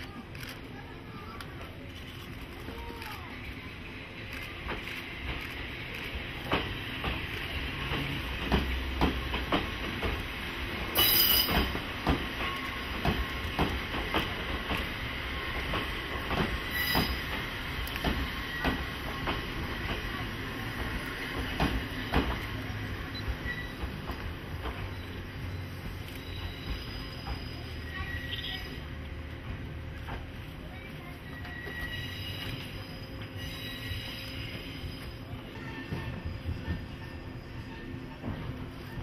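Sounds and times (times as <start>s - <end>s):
train running rumble: 0.0s - 39.0s
train wheels clacking over rail joints: 4.5s - 22.6s
high-pitched wheel squeals: 31.2s - 38.2s.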